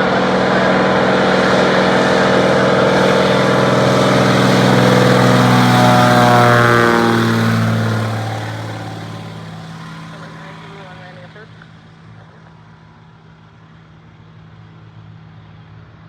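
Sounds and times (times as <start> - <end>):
propeller plane passing: 0.0 - 16.0.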